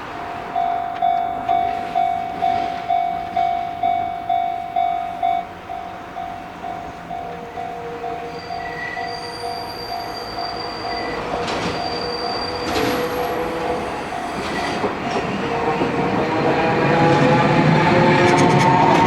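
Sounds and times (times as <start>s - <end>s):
level-crossing warning bell ringing: 0.0s - 19.0s
train rumble: 0.0s - 19.0s.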